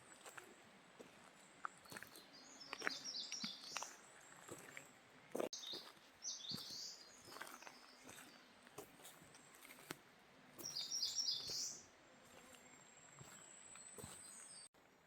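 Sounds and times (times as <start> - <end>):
small birds chirping: 1.6 - 9.9, 10.6 - 14.7.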